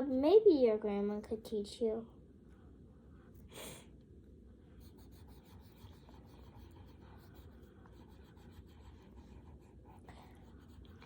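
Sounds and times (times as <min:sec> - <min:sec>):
pencils scratching on paper: 0:04.8 - 0:11.0.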